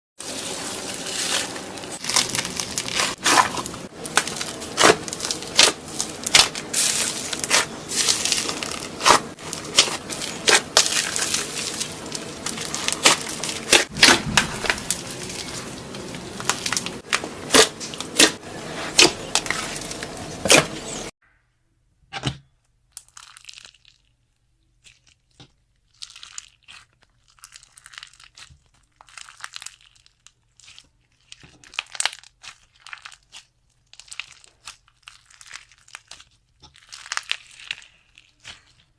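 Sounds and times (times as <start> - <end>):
slime crackling and popping: 1.1 - 18.4, 22.9 - 38.9.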